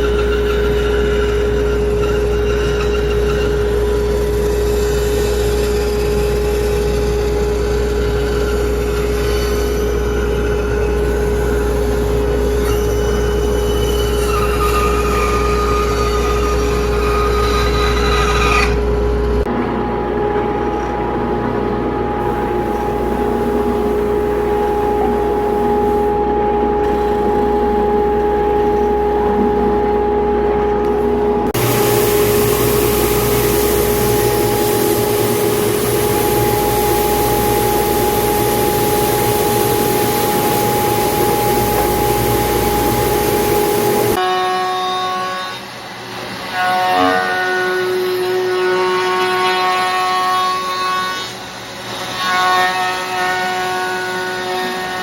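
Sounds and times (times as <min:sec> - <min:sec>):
woodworking machine motor whine: 0:00.0 - 0:55.0
machine motor humming: 0:19.2 - 0:44.2.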